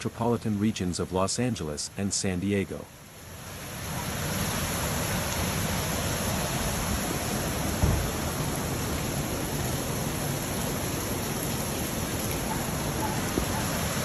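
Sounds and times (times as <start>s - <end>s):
rushing floodwater: 0.0s - 14.0s
low thump: 7.8s - 8.1s.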